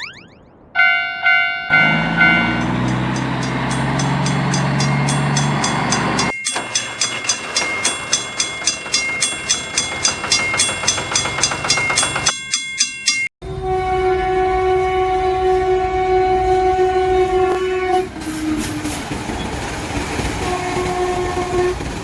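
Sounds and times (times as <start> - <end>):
high ringing tone: 0.0 - 2.7
low horn-like tone: 0.8 - 2.8, 13.4 - 18.6
train wheel clatter: 2.5 - 12.6.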